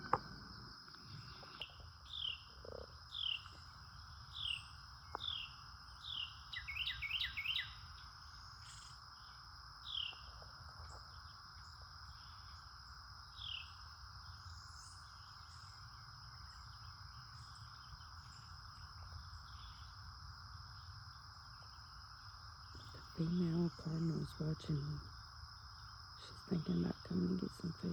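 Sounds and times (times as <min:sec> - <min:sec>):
songbird calling: 0:00.0 - 0:09.0, 0:09.8 - 0:10.3, 0:13.4 - 0:18.5
insects droning: 0:00.0 - 0:27.9.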